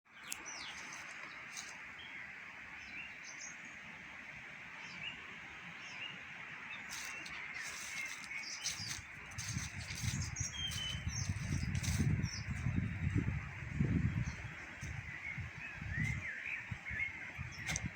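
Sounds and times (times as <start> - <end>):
songbirds chirping: 0.1 - 17.9
wind buffeting microphone: 6.9 - 17.9.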